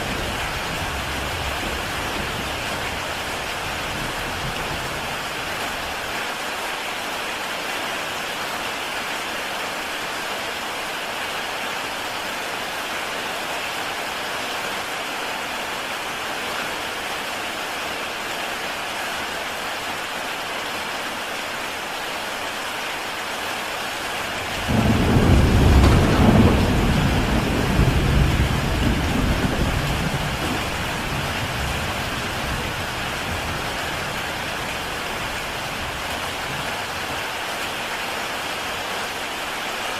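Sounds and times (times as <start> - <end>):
thunder rumble: 0.0 - 5.1, 24.4 - 36.7
heavy rain on a tile roof: 0.0 - 39.9.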